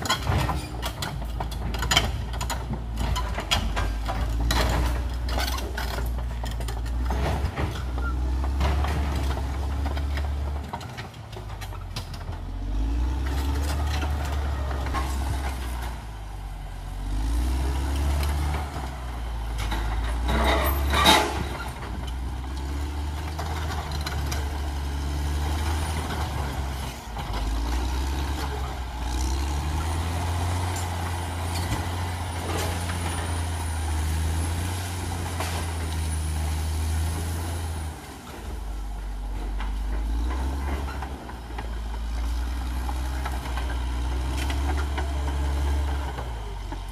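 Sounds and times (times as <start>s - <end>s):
bulldozer diesel engine working: 0.0s - 46.9s.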